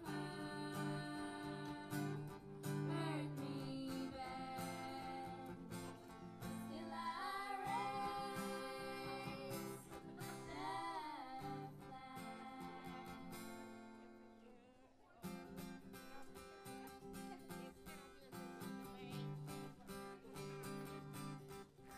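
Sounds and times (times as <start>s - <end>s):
person singing: 0.0s - 13.6s
strummed acoustic guitar: 0.0s - 14.4s, 15.2s - 21.9s.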